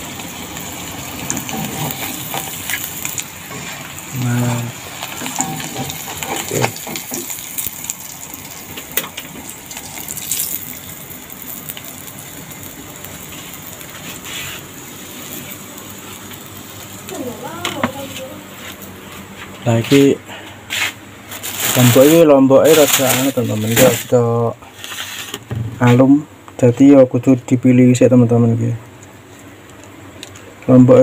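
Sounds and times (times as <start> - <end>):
fish sizzling in hot oil: 0.0 - 19.1, 21.3 - 25.4.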